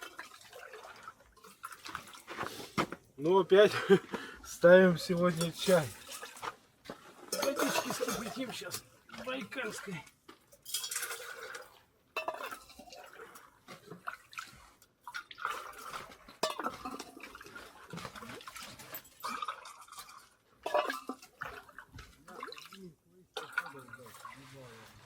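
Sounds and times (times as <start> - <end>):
water pouring into kettle: 0.0 - 2.3, 10.6 - 22.8.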